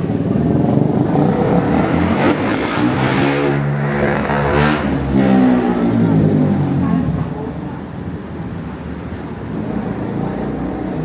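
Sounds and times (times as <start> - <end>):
street traffic noise: 0.0 - 11.0
vehicle engine revving: 0.2 - 6.8, 9.9 - 11.0.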